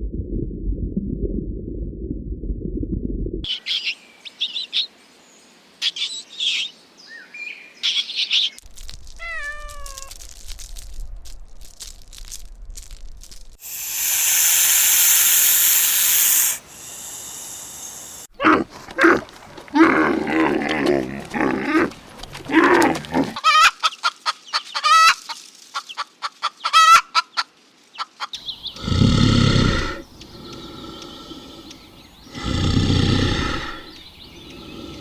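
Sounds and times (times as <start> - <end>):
cat meowing: 9.2 - 10.2
cat hissing: 13.6 - 18.3.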